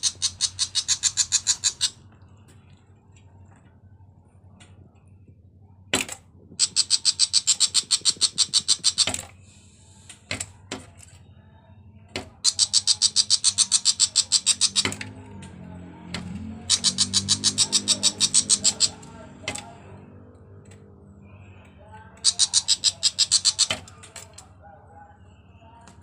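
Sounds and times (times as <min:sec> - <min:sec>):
bird chattering rattle: 0:00.0 - 0:02.0, 0:06.5 - 0:09.3, 0:12.4 - 0:15.2, 0:16.6 - 0:19.7, 0:22.2 - 0:24.5
sharp bird calls: 0:00.0 - 0:02.1, 0:06.6 - 0:09.2, 0:12.4 - 0:15.2, 0:16.4 - 0:19.9, 0:22.2 - 0:24.1.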